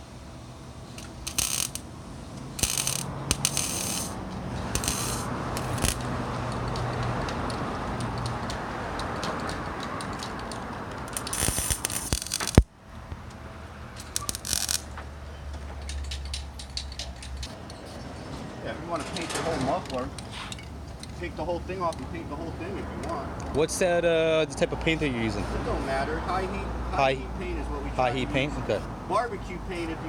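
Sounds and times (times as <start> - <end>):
spray can clicks and rattles: 2.6 - 8.3, 9.0 - 12.6, 14.0 - 14.9
aerosol can spraying: 11.2 - 12.6.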